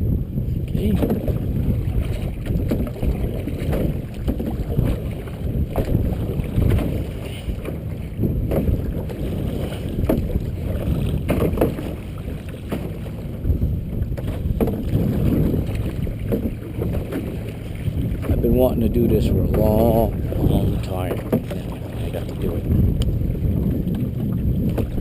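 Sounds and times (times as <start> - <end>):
wind buffeting microphone: 0.0 - 25.0
water splashing: 0.7 - 25.0
knocks against canoe hull: 0.9 - 18.5, 19.3 - 20.3, 21.1 - 21.9.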